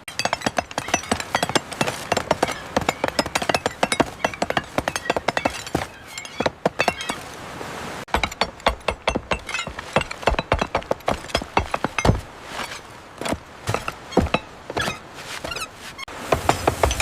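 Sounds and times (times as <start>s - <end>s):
hammering and hand tools: 0.0s - 7.2s, 8.1s - 12.2s, 13.3s - 17.0s.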